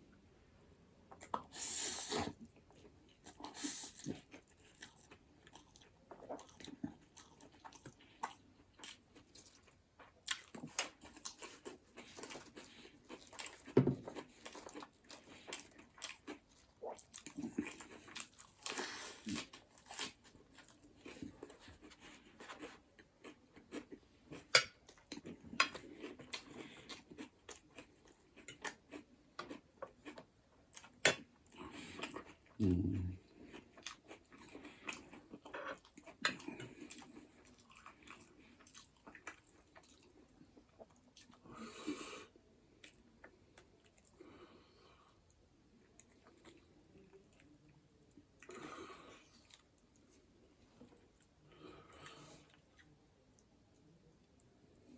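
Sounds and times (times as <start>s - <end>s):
person chewing: 1.1s - 44.2s, 45.1s - 54.9s.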